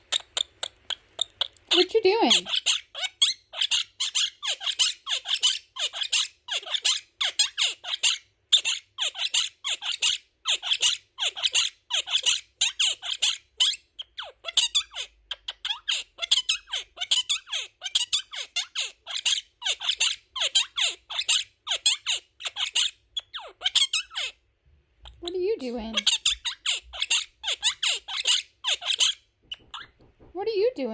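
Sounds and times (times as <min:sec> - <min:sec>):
parrot chattering: 0:00.0 - 0:24.4, 0:25.0 - 0:30.0.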